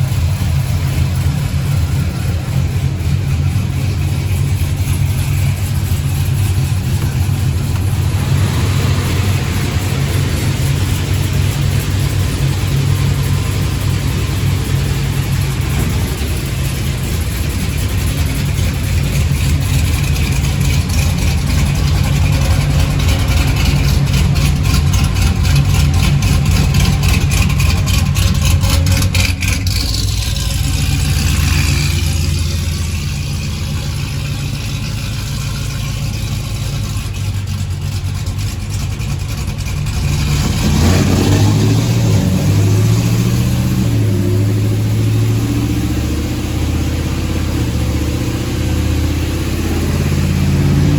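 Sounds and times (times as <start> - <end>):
falling whine: 0.0 - 27.2
supercharged engine under load: 0.0 - 50.9.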